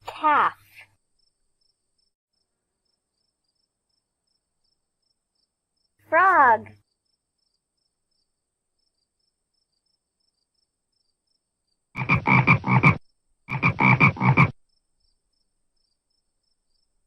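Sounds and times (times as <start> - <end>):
high insect chirping: 1.0 - 6.0, 6.8 - 17.0
frog croaking: 12.0 - 14.6.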